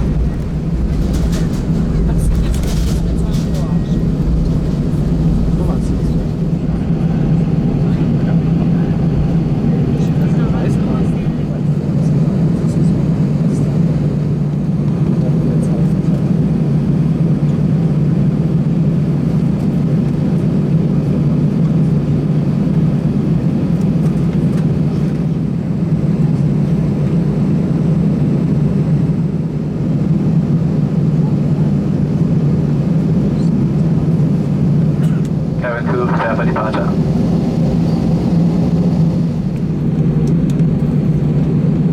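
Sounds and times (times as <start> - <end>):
airplane cabin drone: 0.0 - 41.9.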